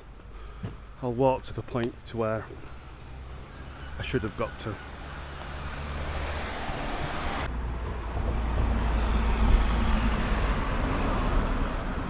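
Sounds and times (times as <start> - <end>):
cars driving past: 2.5 - 12.0.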